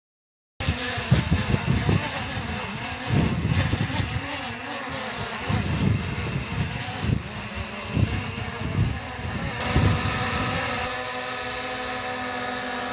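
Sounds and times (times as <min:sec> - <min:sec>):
wind gusting on microphone: 0:00.6 - 0:12.4
drone propellers buzzing: 0:00.6 - 0:12.9.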